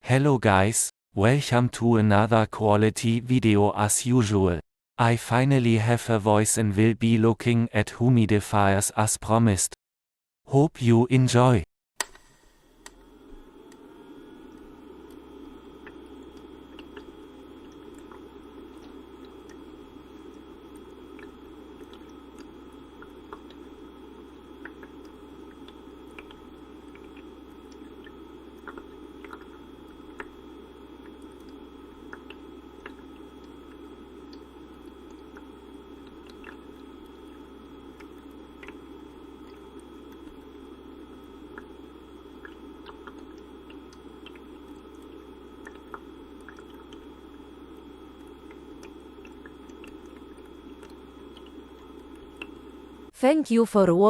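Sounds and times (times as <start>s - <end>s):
humidifier humming and hissing: 11.4s - 54.0s.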